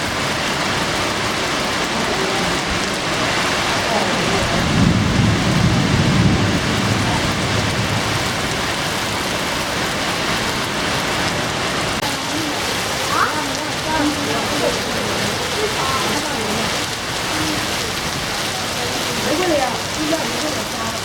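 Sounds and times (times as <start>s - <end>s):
heavy rain pouring onto pond: 0.0s - 21.0s
low rumble of thunder: 3.8s - 10.5s.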